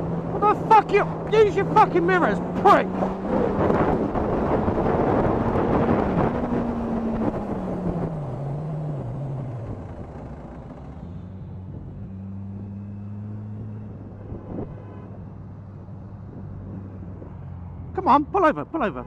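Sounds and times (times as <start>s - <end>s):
wind rush: 0.2s - 8.2s.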